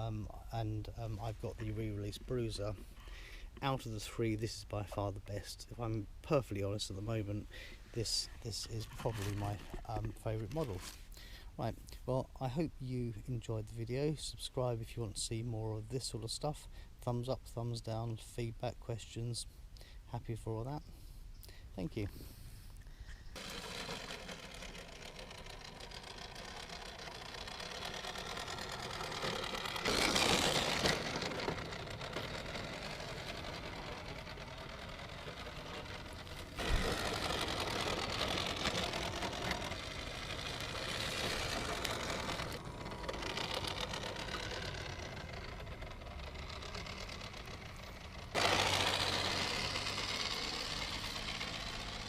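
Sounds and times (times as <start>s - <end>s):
toy truck electric motor whirring: 23.1s - 52.0s.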